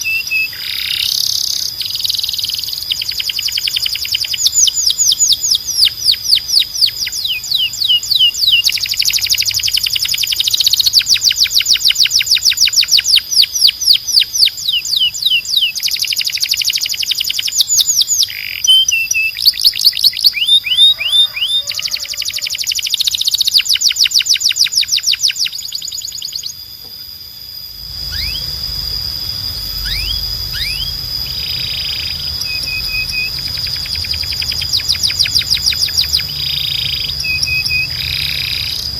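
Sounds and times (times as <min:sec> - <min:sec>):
canary singing trills: 0:00.0 - 0:38.9
low background hum: 0:24.8 - 0:38.9.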